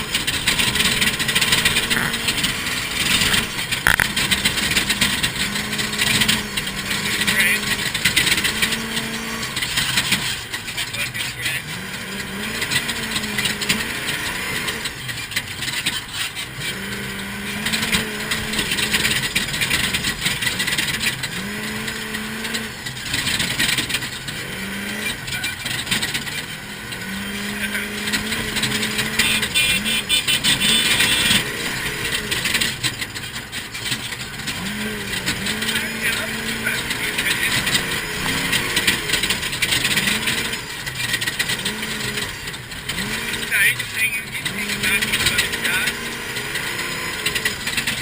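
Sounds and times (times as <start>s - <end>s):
rough ground noise: 0.0s - 15.8s
off-road vehicle engine: 0.0s - 48.0s.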